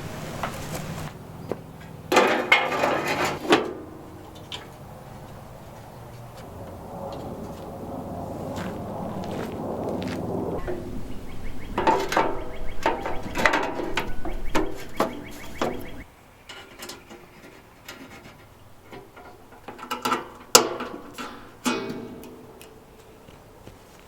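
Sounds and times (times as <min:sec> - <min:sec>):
metal tools clinking and clanking: 0:11.8 - 0:17.0.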